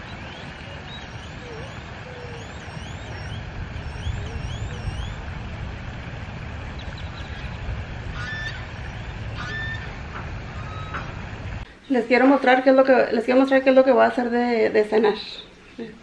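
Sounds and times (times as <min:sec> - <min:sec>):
birds chirping: 0:00.0 - 0:05.7, 0:06.4 - 0:12.5
steady low rumble: 0:00.0 - 0:11.7.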